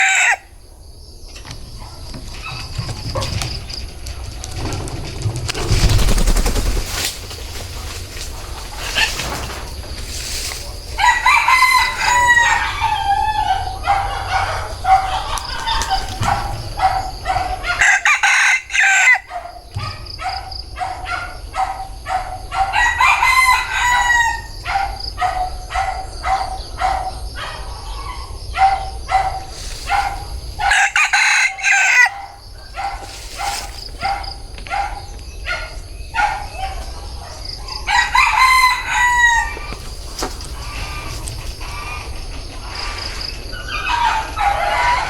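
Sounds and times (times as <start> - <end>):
rooster crowing: 0.0 - 0.5, 10.9 - 19.9, 22.4 - 26.4, 28.6 - 34.3, 37.8 - 39.8, 43.5 - 45.0
chickens clucking: 1.3 - 6.1, 7.6 - 21.0, 23.8 - 45.0.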